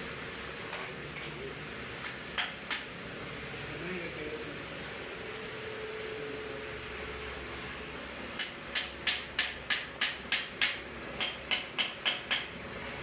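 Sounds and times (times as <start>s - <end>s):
hammer striking metal: 8.4s - 12.5s.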